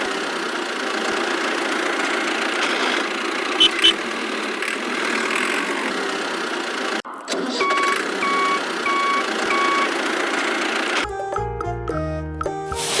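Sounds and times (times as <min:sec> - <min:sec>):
small model engine running: 0:00.0 - 0:07.0, 0:07.9 - 0:11.0
reversing beep: 0:07.6 - 0:10.0.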